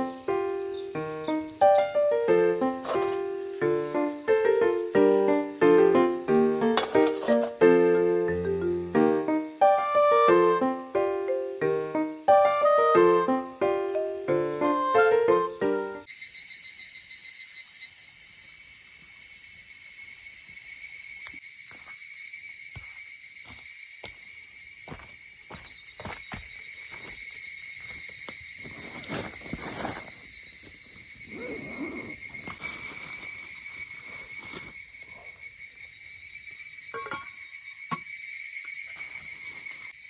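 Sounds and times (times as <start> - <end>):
insects trilling: 0.0 - 40.0
rustling: 28.3 - 35.3.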